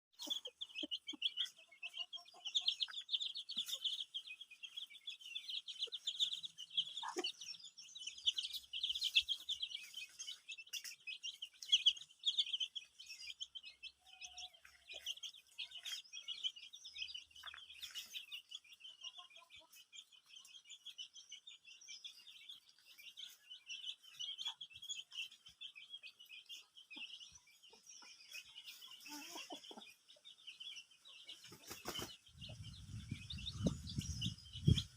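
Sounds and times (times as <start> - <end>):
birds chirping: 0.1 - 34.9.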